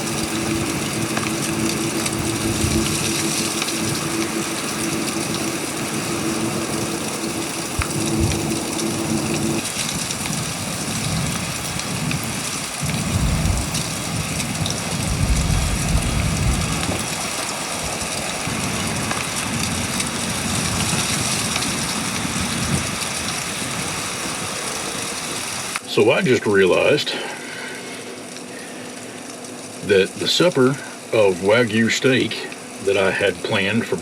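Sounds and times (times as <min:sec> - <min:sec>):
blizzard wind howling and gusting: 0:00.0 - 0:25.8.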